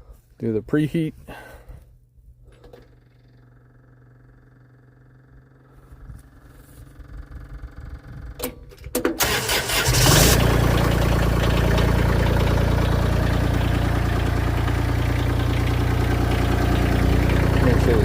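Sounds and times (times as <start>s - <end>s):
diesel engine running: 2.8s - 8.4s, 9.2s - 18.0s
starter motor cranking: 9.0s - 13.0s.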